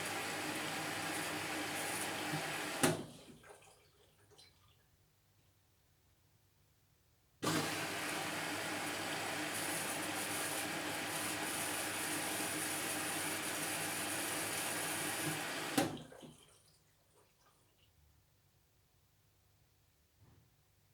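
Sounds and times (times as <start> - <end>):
water rushing into washing machine: 0.0 - 4.7, 7.4 - 16.6.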